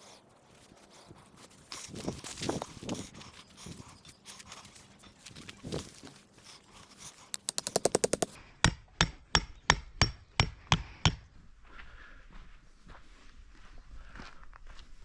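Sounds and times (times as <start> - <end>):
hammer striking tent stake: 7.4 - 11.2.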